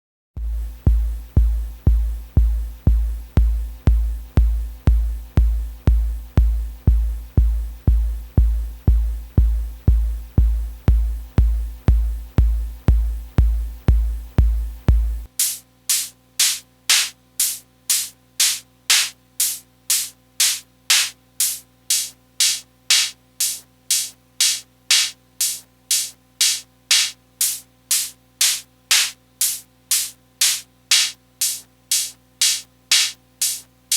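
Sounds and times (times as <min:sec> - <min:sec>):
low bass drum hits with clicks: 0:00.4 - 0:15.3
hissy metallic noise hits: 0:15.4 - 0:33.7.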